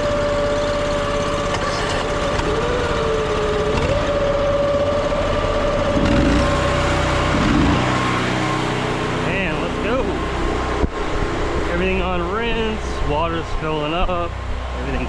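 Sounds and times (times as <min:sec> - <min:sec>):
wavering tone: 0:00.0 - 0:10.8
high whine: 0:00.0 - 0:15.0
pressure washer engines running: 0:00.0 - 0:15.0.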